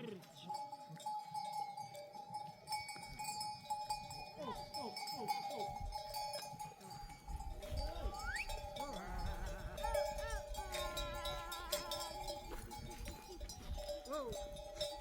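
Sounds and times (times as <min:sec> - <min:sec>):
sheep bells clanking: 0:00.0 - 0:15.0
sheep bleating: 0:07.9 - 0:12.3.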